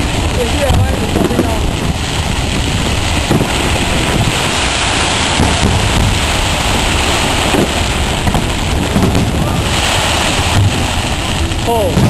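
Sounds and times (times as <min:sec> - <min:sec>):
fireworks rumble and crackle: 0:00.0 - 0:12.0.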